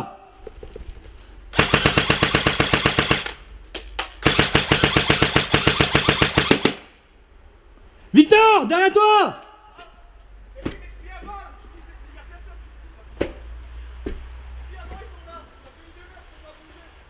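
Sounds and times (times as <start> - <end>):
airsoft rifle firing: 1.5 - 3.4, 4.2 - 7.0.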